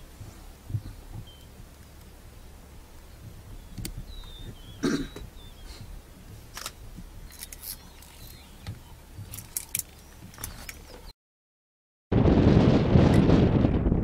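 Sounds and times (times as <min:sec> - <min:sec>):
low steady rumble: 0:00.0 - 0:11.1
faint bird chirps: 0:00.7 - 0:01.6, 0:03.0 - 0:06.0, 0:07.2 - 0:11.1
sharp clicks and rustles: 0:06.3 - 0:11.1.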